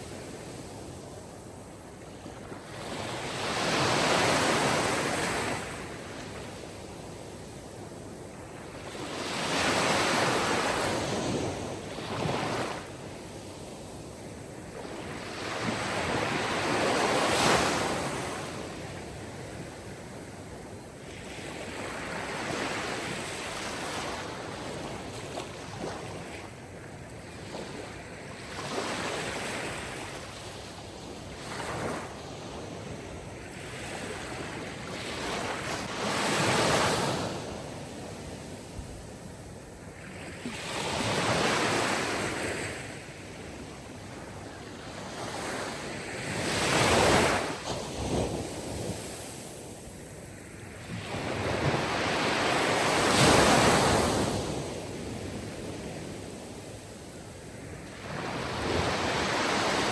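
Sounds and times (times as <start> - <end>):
sea waves washing in: 45.3 - 59.9.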